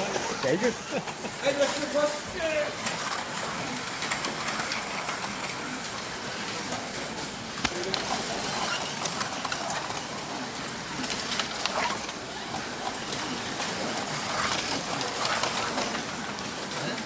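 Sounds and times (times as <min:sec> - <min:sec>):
slot cars whirring: 0:00.0 - 0:17.0
scattered clicks: 0:02.8 - 0:10.2.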